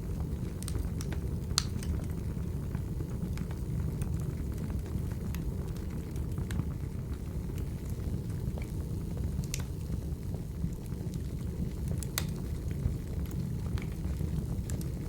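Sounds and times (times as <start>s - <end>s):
low rumble of fire flames: 0.0s - 15.0s
wood fire crackling: 0.0s - 15.0s
sharp fire pops: 0.3s - 2.1s, 11.9s - 12.7s.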